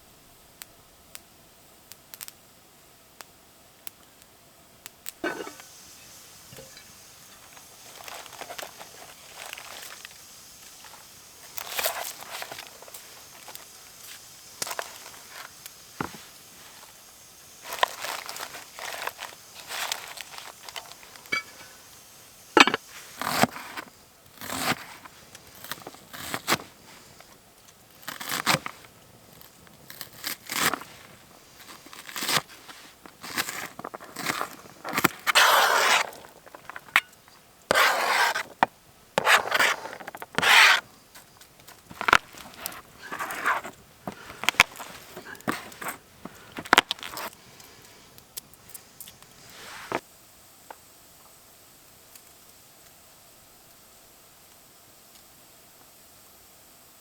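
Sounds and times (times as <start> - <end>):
crunching and rustling: 5.2 - 21.8, 22.5 - 50.0.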